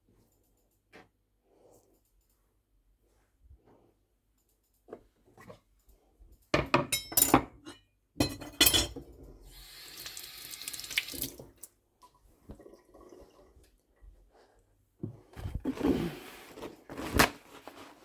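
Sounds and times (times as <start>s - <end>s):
dishes clattering in sink: 6.6s - 9.2s.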